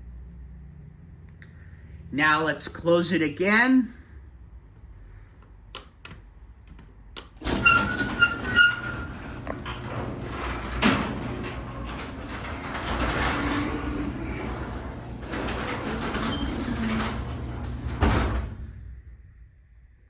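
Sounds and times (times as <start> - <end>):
garage door opener running: 7.4 - 18.9.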